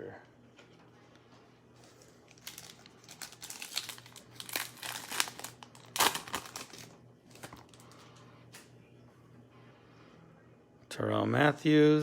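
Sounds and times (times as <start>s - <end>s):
foil wrapper tearing and crinkling: 2.3s - 7.9s.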